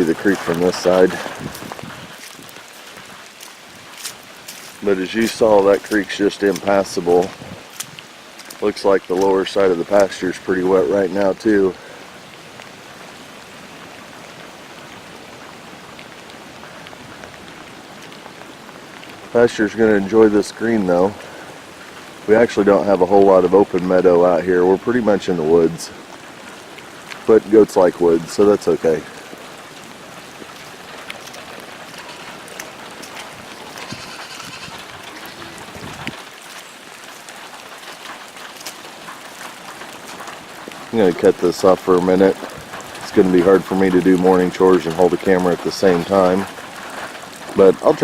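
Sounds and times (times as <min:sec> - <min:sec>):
raindrops ticking: 0:00.0 - 0:48.0
steady rain: 0:00.0 - 0:48.0
goat bleating: 0:31.9 - 0:36.1.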